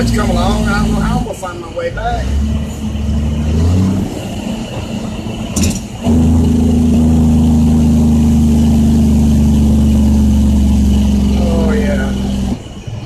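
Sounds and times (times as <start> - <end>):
truck diesel engine: 0.0 - 13.0.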